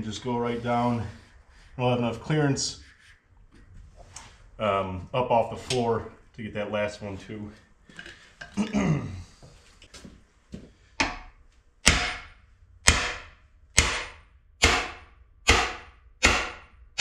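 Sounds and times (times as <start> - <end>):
hammer striking steel driver: 11.0 - 17.0.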